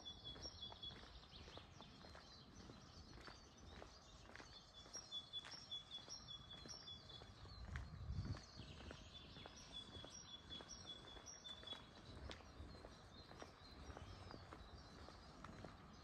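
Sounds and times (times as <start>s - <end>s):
small bird chirping: 0.0s - 16.0s
soft footsteps: 7.2s - 16.0s.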